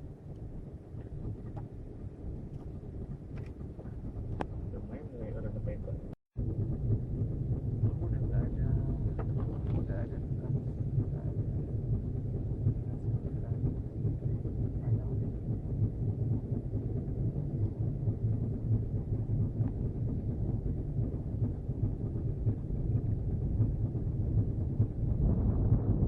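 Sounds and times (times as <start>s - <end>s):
boat motor running: 0.0s - 26.0s
wind on microphone: 0.0s - 26.0s.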